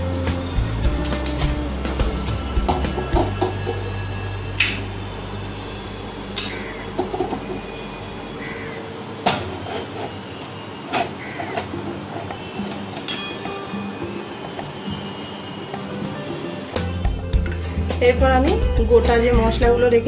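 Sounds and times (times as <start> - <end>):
sharp knocks and clinks: 12.3 - 13.7.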